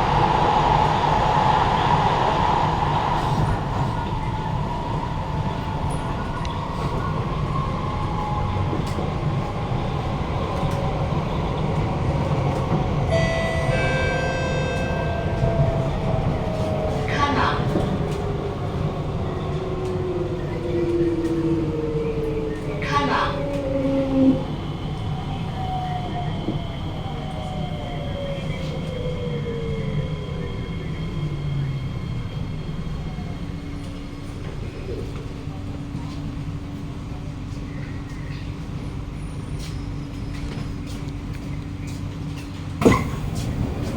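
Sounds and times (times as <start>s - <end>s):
train wheels rumbling: 0.0s - 43.9s
train traction motor whine: 42.8s - 43.9s.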